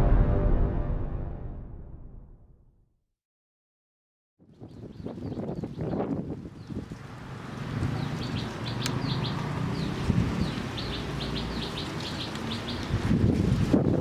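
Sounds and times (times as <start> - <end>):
low rumble: 0.0 - 2.8
small birds chirping: 4.4 - 7.0, 7.8 - 13.0.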